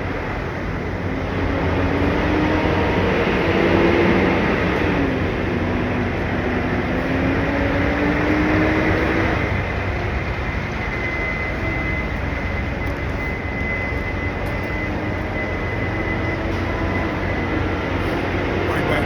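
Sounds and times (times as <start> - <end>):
diesel truck engines rumbling: 0.0 - 19.0.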